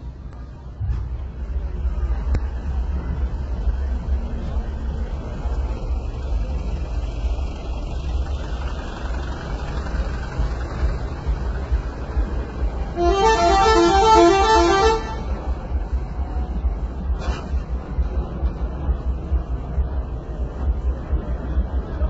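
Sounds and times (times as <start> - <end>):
steady low rumble: 0.0 - 22.0
truck multi-tone horn: 12.9 - 15.6.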